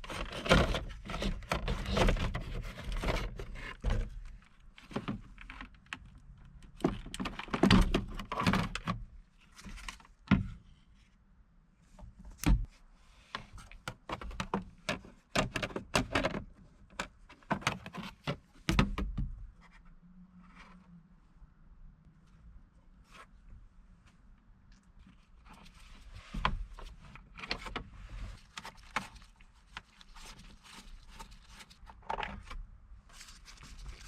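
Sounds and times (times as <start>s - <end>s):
clicks knocks and scrapes: 0.0s - 10.6s.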